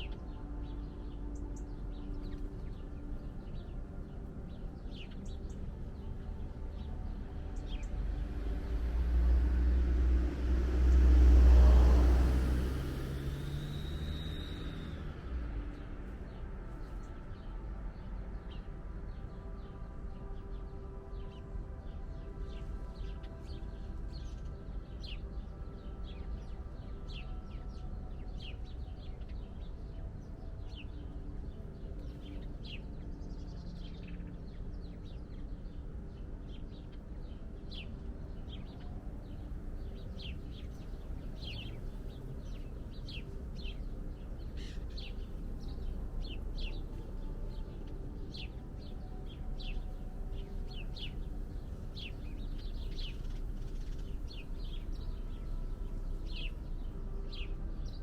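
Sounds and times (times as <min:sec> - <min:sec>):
low steady background hum: 0:00.0 - 0:58.0
songbirds chirping: 0:00.0 - 0:58.0.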